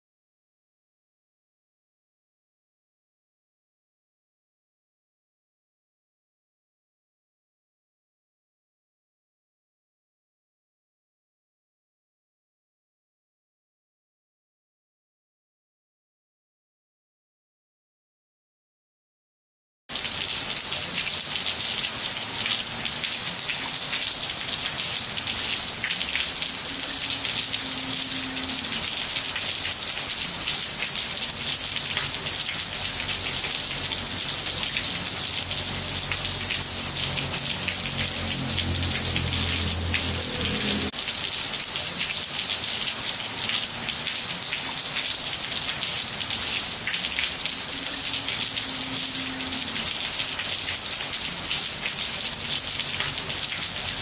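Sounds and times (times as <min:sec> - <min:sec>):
rain on tiled floor: 0:19.9 - 0:54.0.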